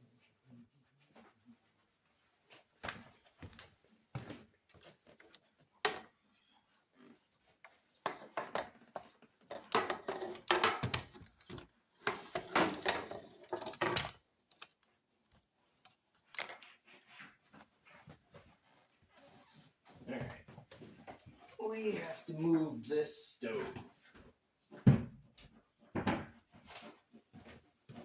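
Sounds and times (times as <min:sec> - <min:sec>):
hard objects clattering: 0:07.9 - 0:14.9.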